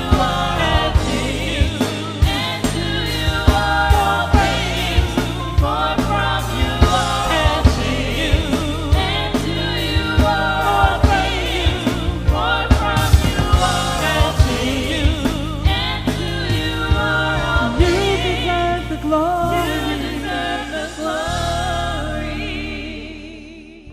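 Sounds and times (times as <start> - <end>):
drum strikes: 0.0 - 18.4
band with bass: 0.0 - 23.9
gospel choir singing: 0.0 - 23.9.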